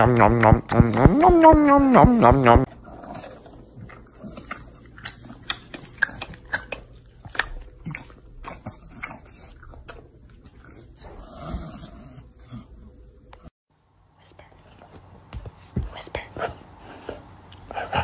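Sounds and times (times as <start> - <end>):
dog chewing crunchy cereal: 2.7 - 10.8.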